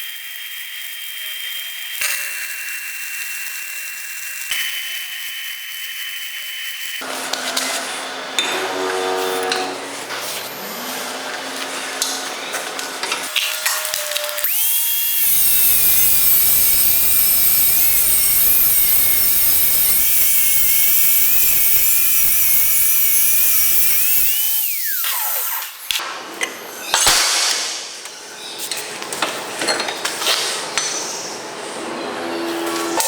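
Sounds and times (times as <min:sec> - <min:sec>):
angle grinder whining: 0:07.0 - 0:27.0.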